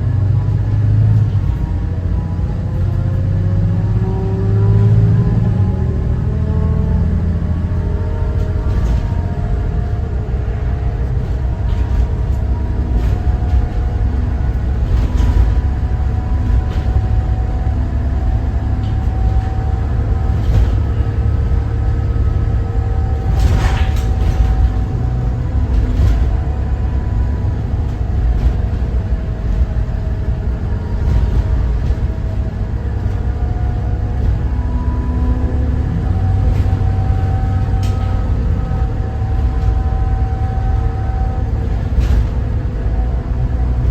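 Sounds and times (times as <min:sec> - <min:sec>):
bus engine rumble: 0:00.0 - 0:43.9
road noise: 0:00.0 - 0:43.9
short knocks and rattles: 0:11.0 - 0:34.5.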